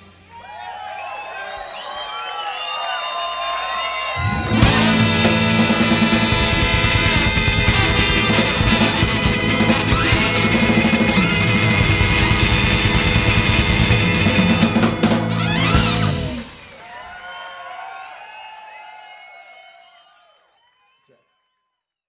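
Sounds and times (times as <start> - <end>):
band with drum kit and bass: 4.2 - 17.1.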